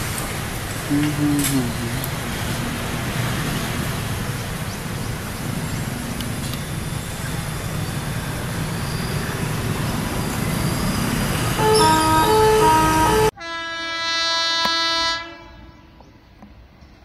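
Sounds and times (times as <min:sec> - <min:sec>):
train wheels on rails: 0:00.0 - 0:13.3.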